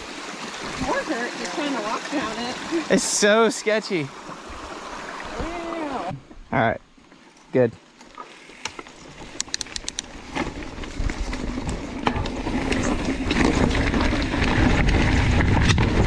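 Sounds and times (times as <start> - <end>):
bike clicks and rattles: 8.5 - 16.0
tyre rumble on dirt: 10.2 - 16.0.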